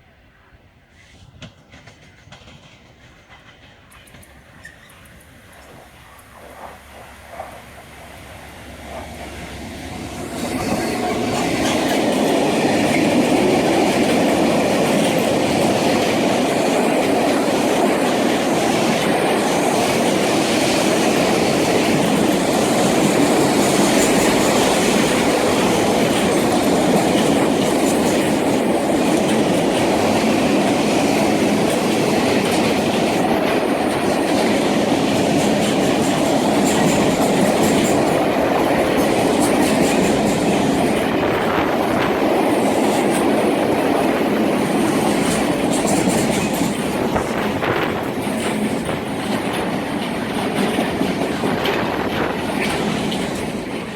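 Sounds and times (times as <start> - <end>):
freight train wheels clattering on rails: 1.0 - 53.9.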